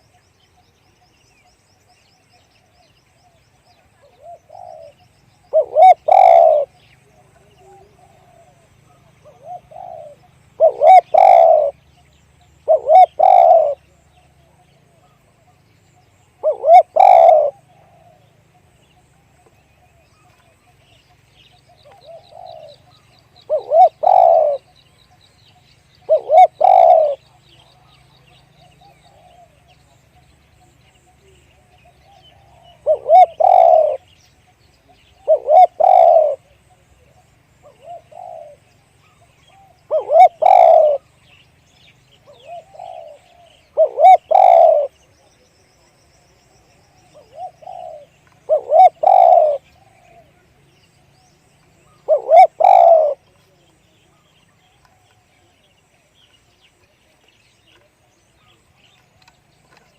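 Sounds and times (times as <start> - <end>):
small bird chirping: 0.0 - 59.9
dove cooing: 3.8 - 18.7, 21.6 - 24.8, 26.0 - 30.2, 30.8 - 34.2, 34.8 - 41.4, 42.2 - 45.5, 46.2 - 51.2, 51.8 - 55.6.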